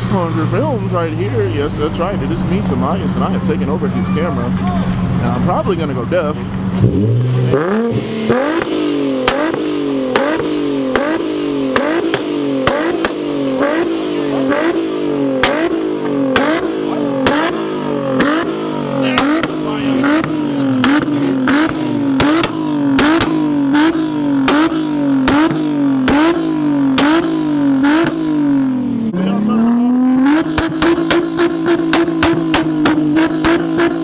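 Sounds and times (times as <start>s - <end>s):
car engine revving: 0.0s - 34.0s
exhaust pops and bangs: 6.4s - 28.7s, 30.3s - 34.0s.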